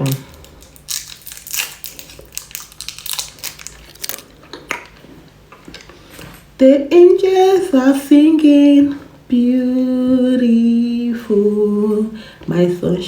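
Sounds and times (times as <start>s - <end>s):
plastic wrapper crinkling: 0.0s - 5.0s.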